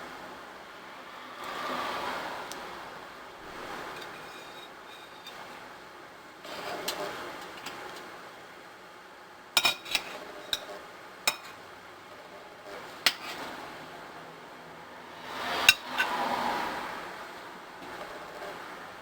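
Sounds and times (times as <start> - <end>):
utensils and dishes clinking: 9.6 - 11.6, 15.6 - 16.2.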